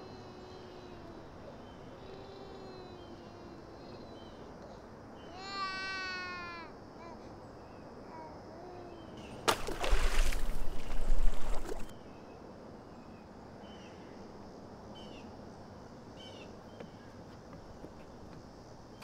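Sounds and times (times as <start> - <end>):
loud splash into water: 9.5 - 11.9.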